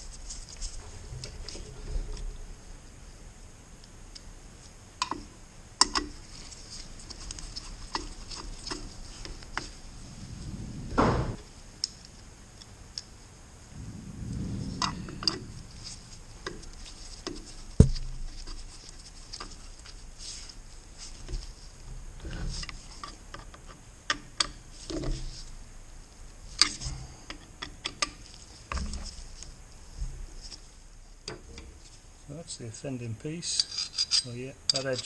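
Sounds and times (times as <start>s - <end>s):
clicks of hand tools and metal parts: 5.0s - 6.2s, 26.6s - 28.9s, 33.4s - 35.0s
sharp knock: 10.9s - 11.4s.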